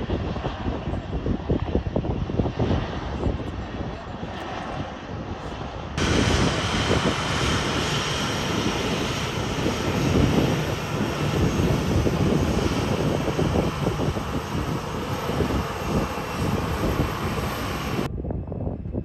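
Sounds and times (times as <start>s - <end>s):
jet engines roaring: 0.0s - 18.1s.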